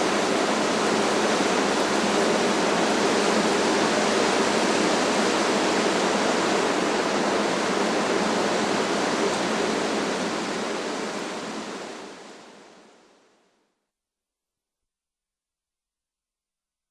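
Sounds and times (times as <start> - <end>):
strong wind through trees: 0.0 - 13.2.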